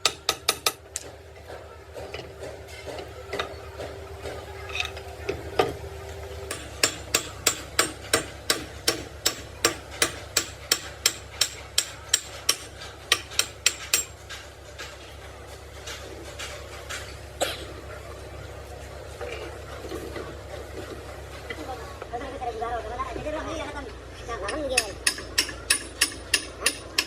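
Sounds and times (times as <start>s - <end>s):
hammer striking metal: 0.0s - 1.2s, 6.4s - 14.4s, 24.5s - 27.0s
steady low hum: 0.0s - 27.0s.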